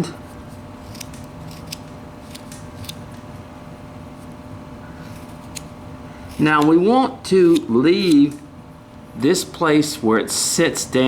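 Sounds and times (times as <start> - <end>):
steady low hum: 0.0 - 11.0
knife cutting wood clicks: 0.9 - 3.0, 6.3 - 6.9.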